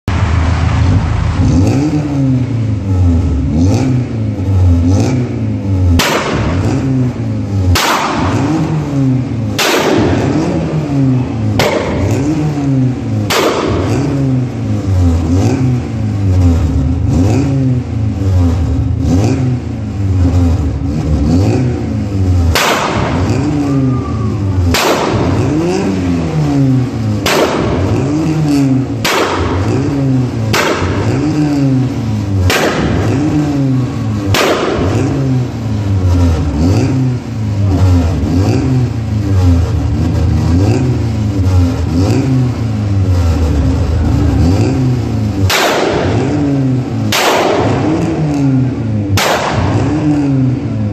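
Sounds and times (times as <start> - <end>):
car engine revving: 0.0 - 50.9
loud exhaust bangs: 0.1 - 50.9.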